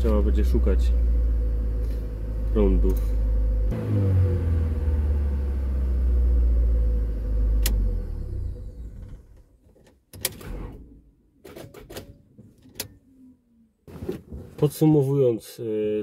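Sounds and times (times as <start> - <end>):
car engine rumbling: 0.0 - 9.8.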